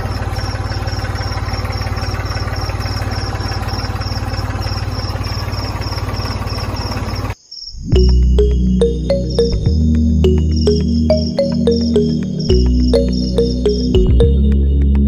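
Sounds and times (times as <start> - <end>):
engine idling: 0.0 - 7.4
crickets chirping: 0.0 - 14.0.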